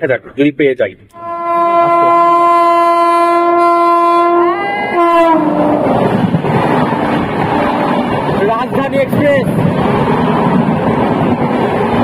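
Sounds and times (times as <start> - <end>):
rushing rail noise: 1.1 - 12.0
locomotive air horn blast: 1.2 - 6.1.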